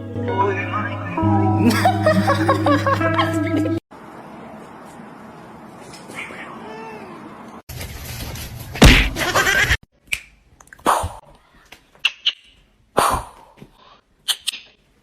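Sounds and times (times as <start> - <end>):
loud slap or thump: 8.8 - 9.2.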